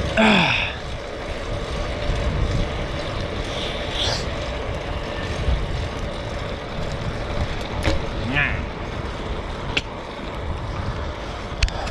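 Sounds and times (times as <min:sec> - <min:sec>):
bike tyres rumbling on road: 0:00.0 - 0:11.9
wind buffeting microphone: 0:00.0 - 0:11.9.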